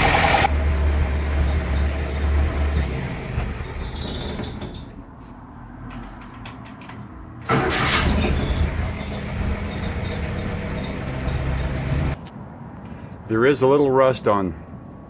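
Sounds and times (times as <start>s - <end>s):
four-cylinder engine running: 0.0s - 3.9s, 7.5s - 12.2s.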